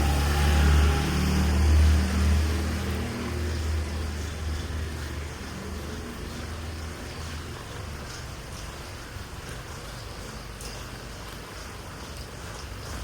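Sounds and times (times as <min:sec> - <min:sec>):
low vehicle rumble: 0:00.0 - 0:07.5
rain hissing on a street: 0:00.0 - 0:13.0.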